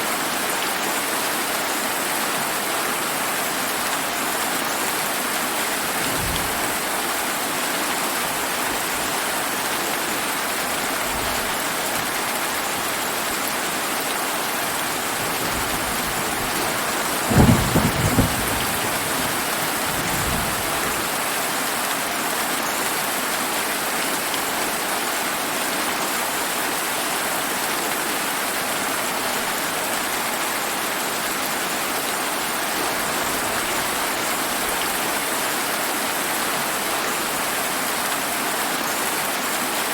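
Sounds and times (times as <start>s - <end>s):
heavy rain falling: 0.1s - 39.9s
thunder clap and rumble: 5.9s - 7.3s, 14.7s - 21.2s.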